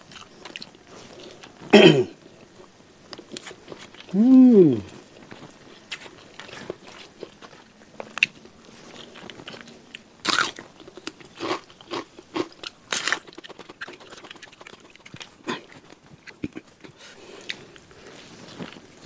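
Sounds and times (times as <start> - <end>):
man chewing and crunching: 0.0 - 19.0.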